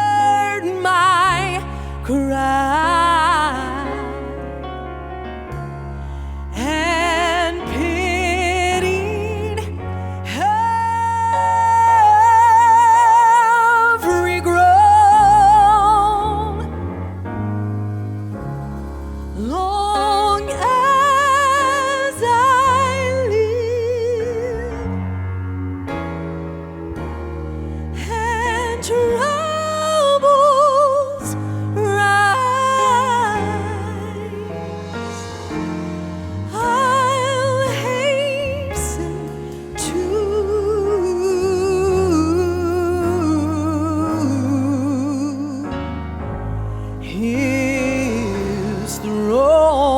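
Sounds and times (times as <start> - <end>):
person singing with vibrato: 0.0 - 4.6, 6.2 - 17.2, 19.3 - 25.2, 27.7 - 46.0, 46.8 - 49.9
steady bass: 0.0 - 49.9
sustained keyboard chords: 0.0 - 49.9
solo voice singing with vibrato: 36.4 - 45.7.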